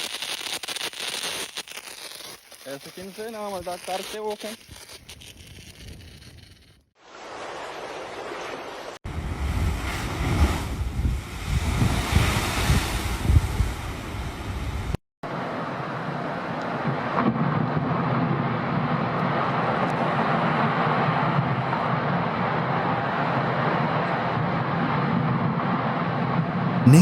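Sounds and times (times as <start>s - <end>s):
wind: 0.0s - 27.0s
wind buffeting microphone: 9.1s - 15.0s.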